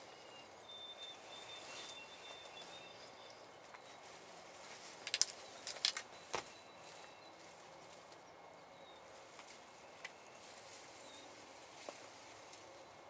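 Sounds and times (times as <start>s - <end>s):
sharp clicks: 5.1s - 6.1s.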